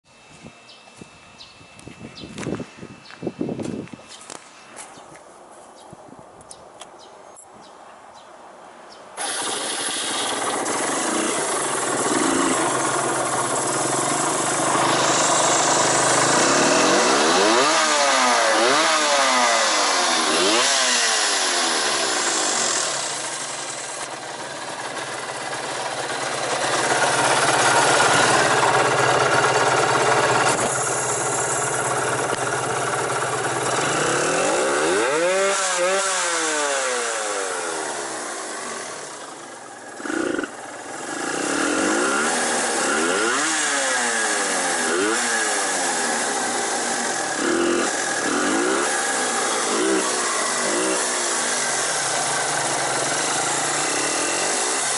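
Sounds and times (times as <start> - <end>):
two-stroke motorcycle engine revving: 9.2 - 54.9.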